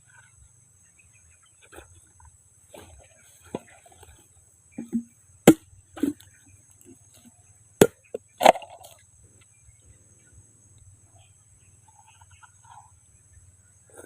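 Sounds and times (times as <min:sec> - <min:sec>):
blade chopping coconut: 0:04.8 - 0:06.2.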